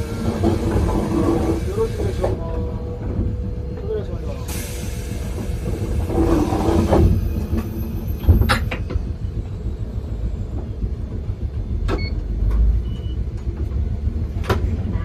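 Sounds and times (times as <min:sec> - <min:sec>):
wheels clacking over rail joints: 0:00.0 - 0:09.6
train wheels rumbling: 0:00.0 - 0:15.0.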